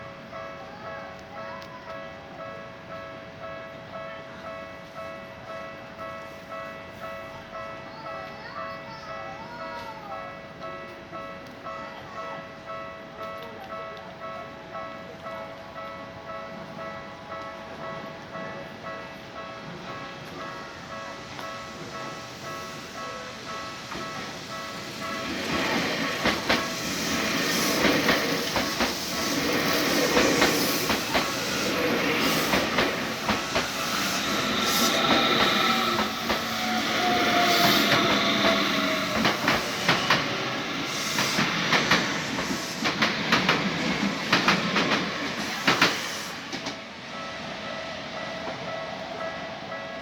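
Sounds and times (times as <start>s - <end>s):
crossing warning bell ringing: 0.0s - 45.5s, 47.0s - 50.0s
train rumble: 12.2s - 50.0s
train wheels clacking over rail joints: 23.8s - 46.8s.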